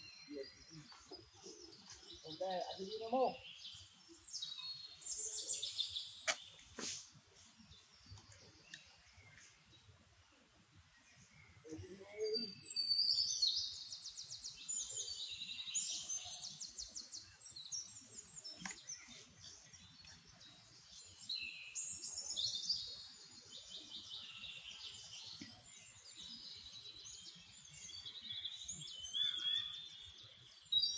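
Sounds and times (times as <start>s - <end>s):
birds chirping and trilling: 0.0s - 30.9s.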